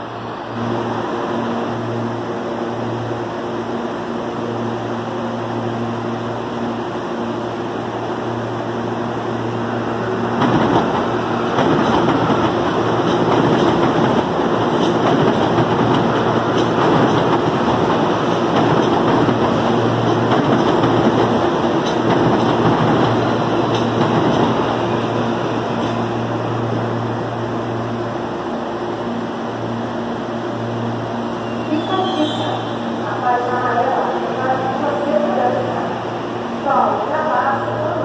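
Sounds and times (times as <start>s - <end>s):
electric train hum: 0.0s - 38.0s
train wheels rumbling on rails: 6.5s - 30.4s.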